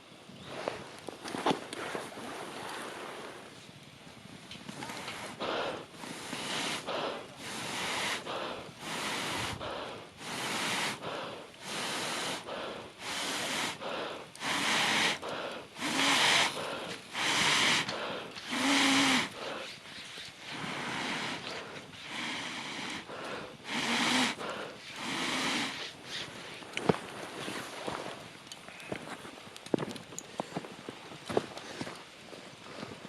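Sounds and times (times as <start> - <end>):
air puffs blown into fire: 4.6 - 26.8.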